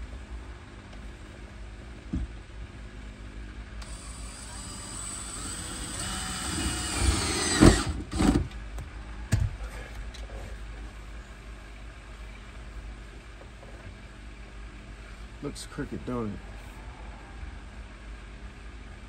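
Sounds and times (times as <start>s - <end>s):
electric drill motor whine: 3.8s - 8.4s.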